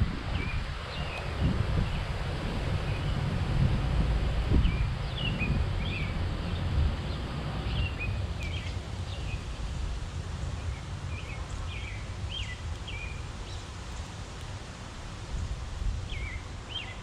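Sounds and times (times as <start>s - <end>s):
steady low rumble: 0.0s - 14.0s
songbirds chirping: 4.5s - 14.6s, 16.0s - 17.0s.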